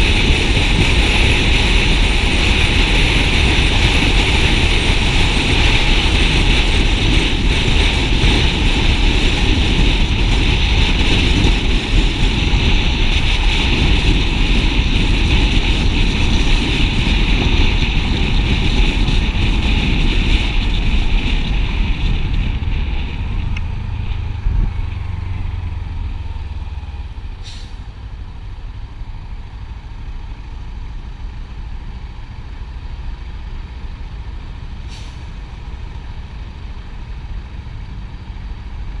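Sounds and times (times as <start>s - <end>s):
wind noise: 0.0s - 29.9s
motorcycle riding at speed: 0.0s - 39.0s.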